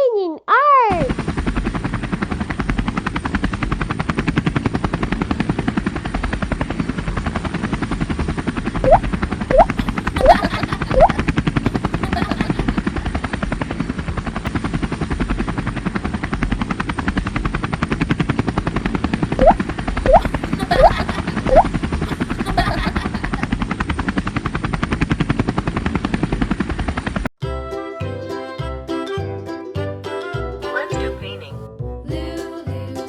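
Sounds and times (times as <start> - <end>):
helicopter rotor chopping: 1.0 - 27.2.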